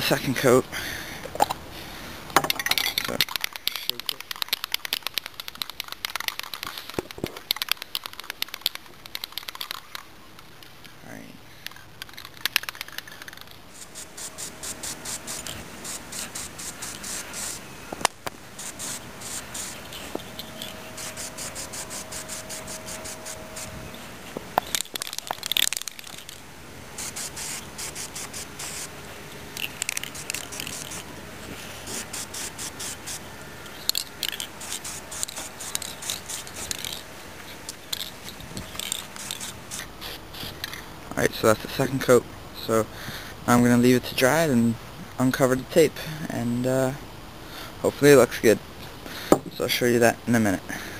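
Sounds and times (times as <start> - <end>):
aerosol spray can hissing: 12.3 - 24.0, 24.6 - 26.4, 27.0 - 31.1, 31.8 - 37.1, 37.7 - 40.8.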